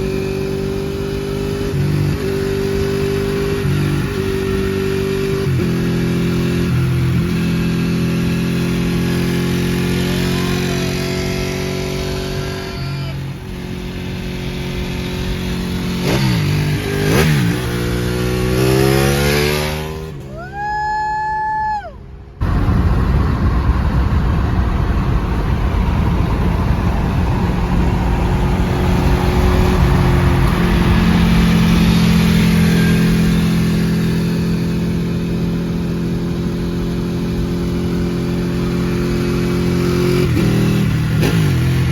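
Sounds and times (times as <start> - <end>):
motorcycle engine revving: 0.0 - 20.2, 22.4 - 41.9
rushing air: 22.0 - 34.2.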